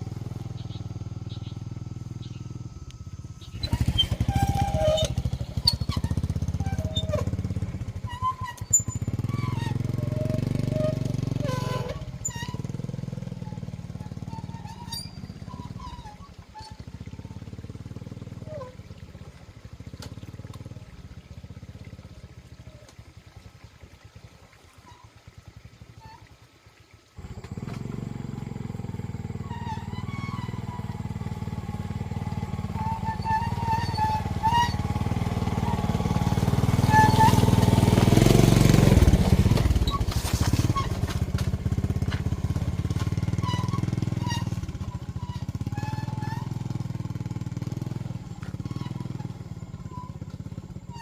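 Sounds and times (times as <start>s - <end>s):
motorcycle engine running: 0.0s - 22.8s, 27.2s - 51.0s.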